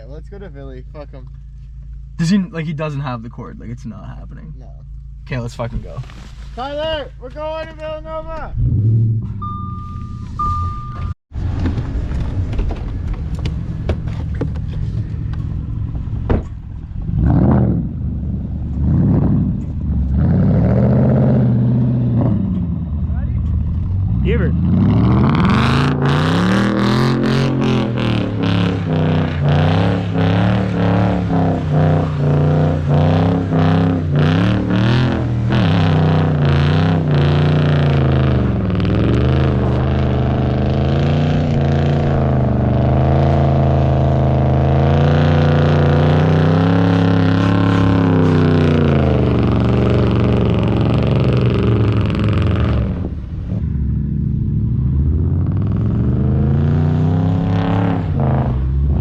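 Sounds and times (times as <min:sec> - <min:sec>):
car engine revving hard: 0:18.8 - 0:22.5, 0:24.0 - 0:53.2, 0:54.4 - 0:59.0.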